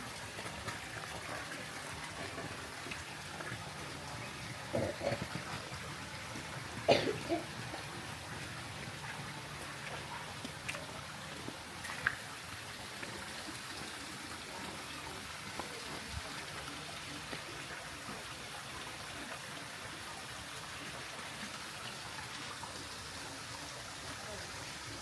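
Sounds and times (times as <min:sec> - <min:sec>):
flowing water: 0:00.0 - 0:25.0.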